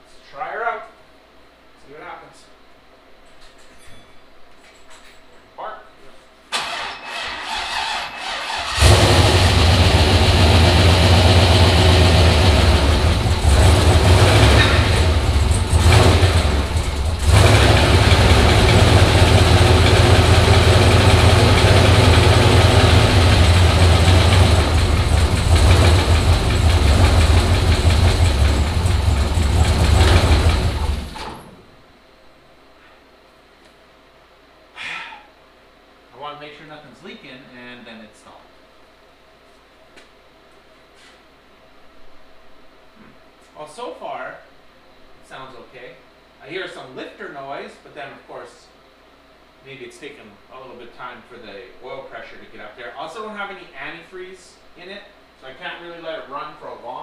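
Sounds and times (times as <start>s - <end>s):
engine cranking on starter: 6.5s - 31.6s
engine running loud: 8.7s - 31.4s.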